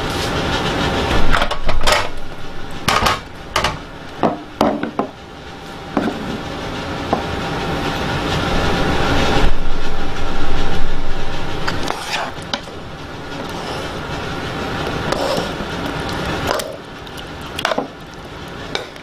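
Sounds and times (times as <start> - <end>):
steady rushing noise: 0.0 - 17.4.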